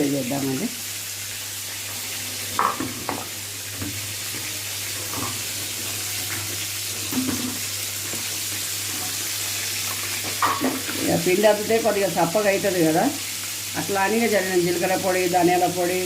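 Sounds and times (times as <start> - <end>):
chicken frying in hot oil: 0.0 - 16.0.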